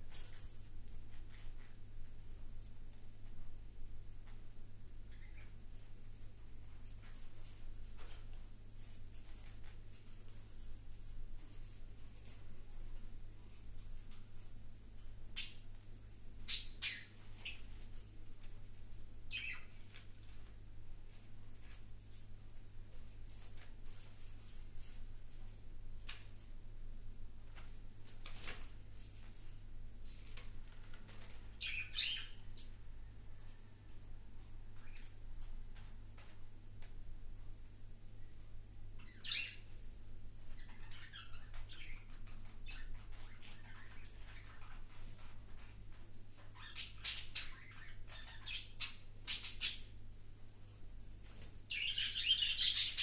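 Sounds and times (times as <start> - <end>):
bird chirping: 4.0 - 5.9, 15.3 - 15.7, 16.4 - 17.8, 19.3 - 20.0, 31.5 - 32.6, 34.7 - 35.2, 39.0 - 39.8, 40.4 - 45.8, 46.4 - 50.0, 51.7 - 53.0.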